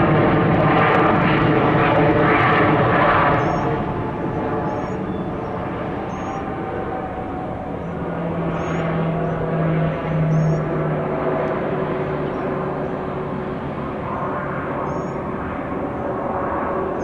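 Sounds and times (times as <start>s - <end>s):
jet engines roaring: 0.0s - 17.0s
small bird chirping: 3.4s - 3.7s, 4.7s - 6.4s.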